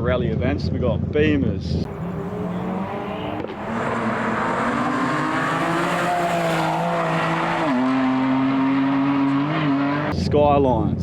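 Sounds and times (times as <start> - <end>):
rally car engine revving high: 1.8 - 10.2.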